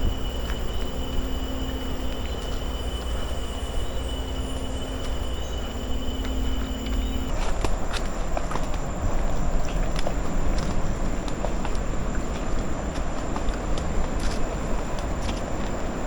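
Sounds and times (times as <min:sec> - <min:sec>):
low rumble: 0:00.0 - 0:11.8
rainforest insects droning: 0:00.0 - 0:16.0.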